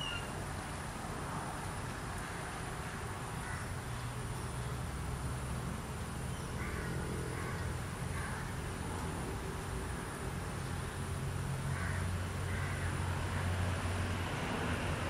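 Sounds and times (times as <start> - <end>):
faint bird calls: 0.0 - 0.4, 2.2 - 4.7, 6.3 - 8.6.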